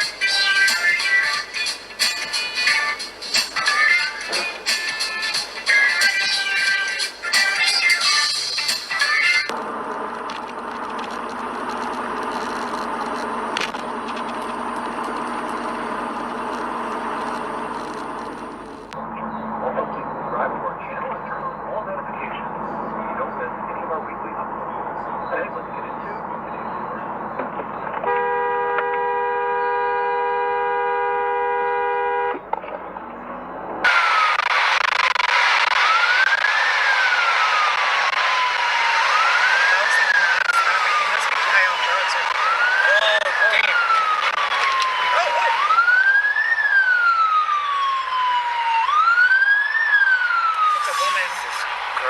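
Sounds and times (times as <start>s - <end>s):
car road and engine noise: 0.0s - 52.0s
two-tone car horn blast: 28.0s - 32.5s
loud rushing noise: 50.4s - 52.0s.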